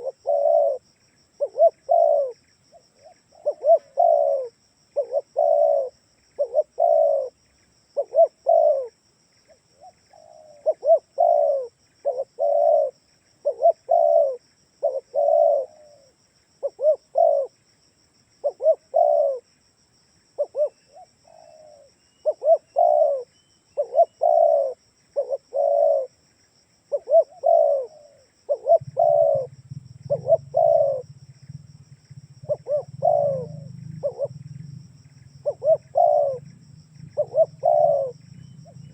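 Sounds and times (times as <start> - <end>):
dove cooing: 0.0 - 17.6, 18.4 - 19.5, 20.4 - 26.2, 26.9 - 38.9
low hum: 28.7 - 38.9.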